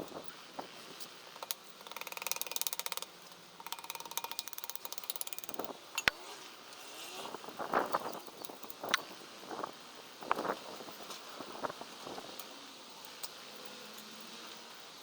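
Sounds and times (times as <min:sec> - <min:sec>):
ratchet wrench clicking: 0:01.4 - 0:06.2.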